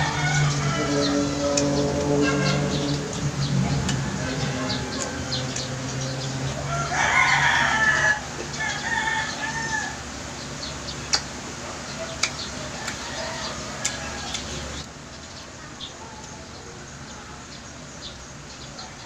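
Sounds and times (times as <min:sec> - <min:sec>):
mouth clicks and smacks: 0:12.2 - 0:13.0.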